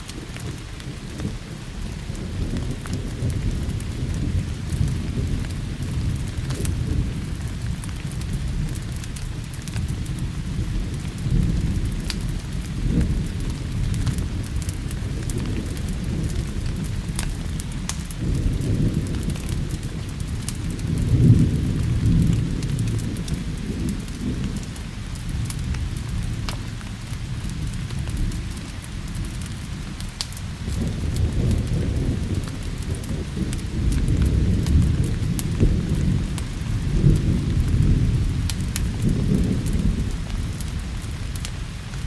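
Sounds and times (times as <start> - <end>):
rolling thunder: 0.0 - 42.0
steady rain: 0.0 - 42.0
wood fire crackling: 0.0 - 42.0.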